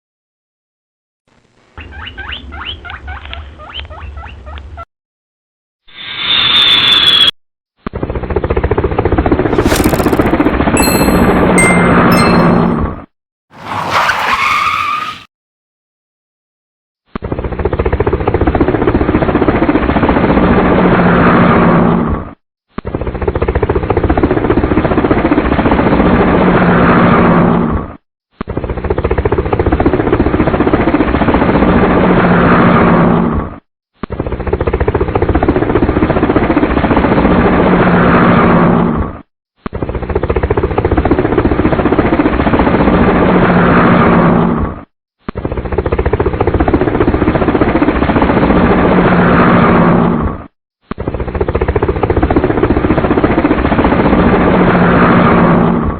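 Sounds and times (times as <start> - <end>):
helicopter rotor chopping: 9.2 - 10.7, 45.4 - 48.6, 51.0 - 54.8.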